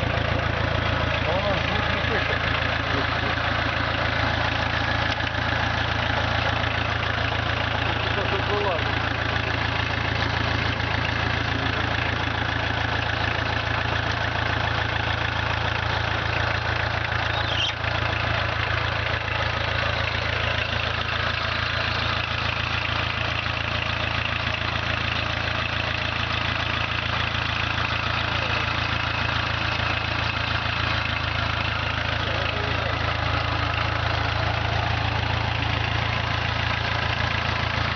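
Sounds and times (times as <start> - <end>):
diesel engine idling: 0.0 - 37.9.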